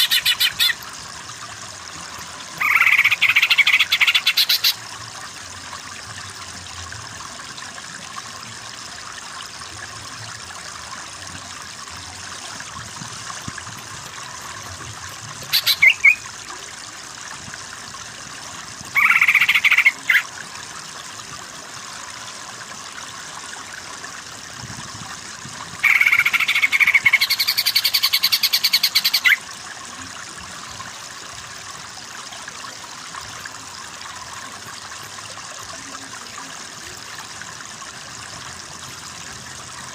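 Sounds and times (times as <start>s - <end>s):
running water: 0.0s - 39.9s
bird singing: 15.5s - 16.2s.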